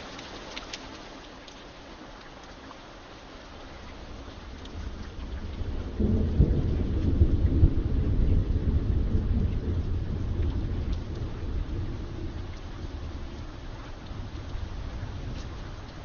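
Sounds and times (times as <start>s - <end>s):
steady rain: 0.0s - 16.0s
thunder rumbling: 4.0s - 16.0s.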